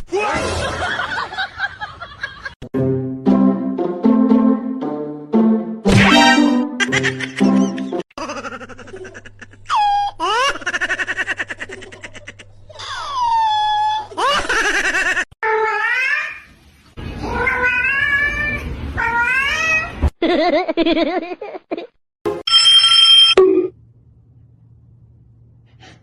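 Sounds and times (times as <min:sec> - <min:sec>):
cats meowing: 0:17.2 - 0:19.9.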